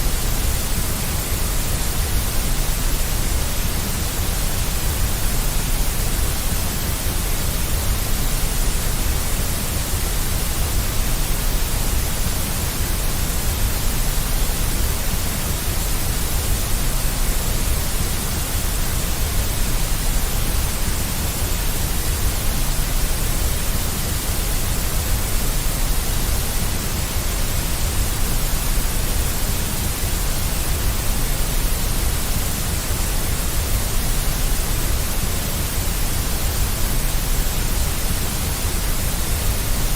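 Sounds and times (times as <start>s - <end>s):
bright hiss: 0.0s - 39.9s
white noise with deep rumble: 0.0s - 39.9s.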